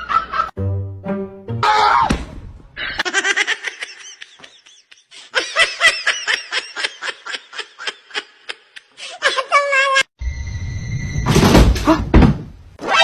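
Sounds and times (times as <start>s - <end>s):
high-pitched laughter: 2.8s - 10.1s.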